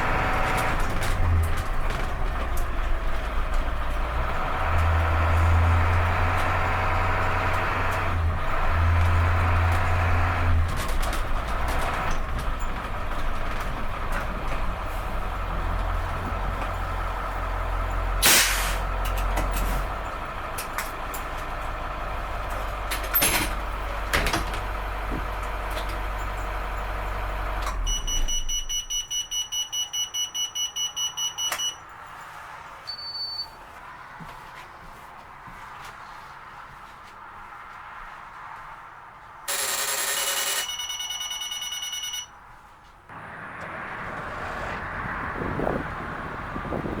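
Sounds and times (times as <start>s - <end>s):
diesel bus engine running: 0.0s - 47.0s
rapid electronic warning beep: 27.9s - 31.8s, 39.5s - 42.4s.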